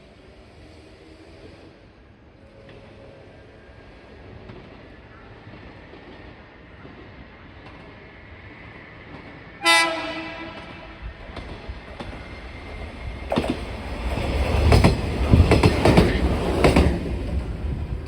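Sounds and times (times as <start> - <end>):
train horn blast: 9.6 - 11.1
train wheels clickety-clack: 10.1 - 18.0.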